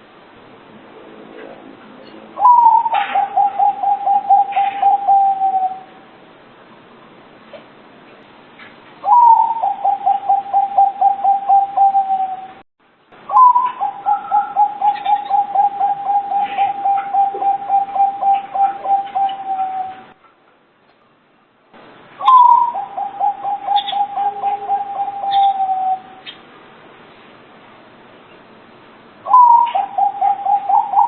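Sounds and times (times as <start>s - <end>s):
dove cooing: 2.4s - 6.0s, 9.0s - 12.6s, 13.3s - 20.2s, 22.2s - 26.3s, 29.3s - 31.0s.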